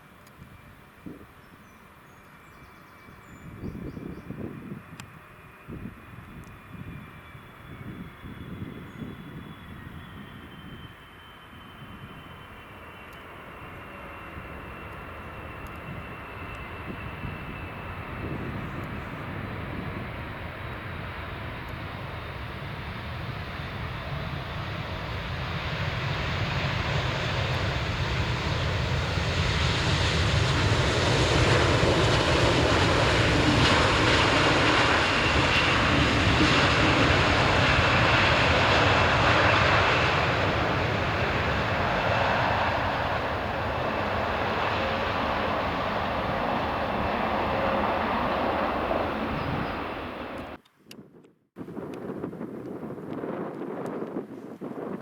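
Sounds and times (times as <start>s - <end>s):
faint high whine: 0.0s - 23.0s
jet engines roaring: 4.3s - 50.6s.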